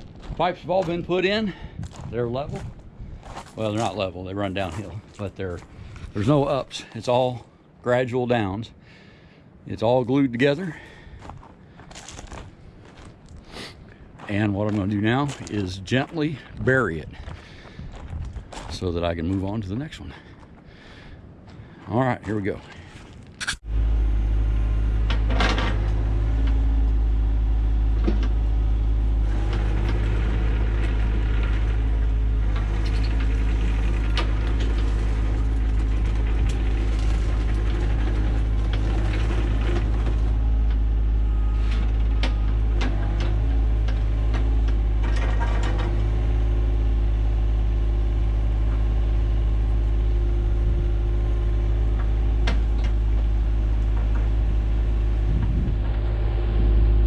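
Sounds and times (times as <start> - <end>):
bucket clanking and scraping soil: 0.0 - 7.4, 29.2 - 46.4
diesel engine running: 0.0 - 7.5, 10.1 - 57.0.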